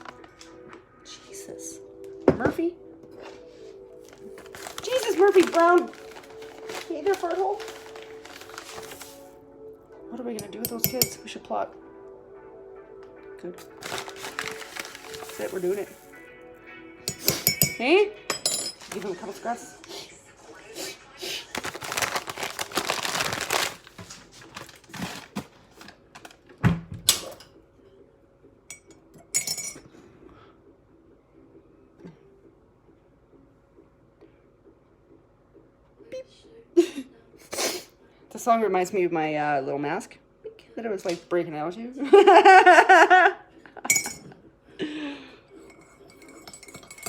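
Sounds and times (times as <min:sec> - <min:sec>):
dishes and utensils clattering: 0:17.1 - 0:19.2, 0:28.7 - 0:30.0, 0:43.8 - 0:44.4, 0:45.6 - 0:47.0
cup clinking: 0:43.9 - 0:44.3, 0:45.6 - 0:47.0.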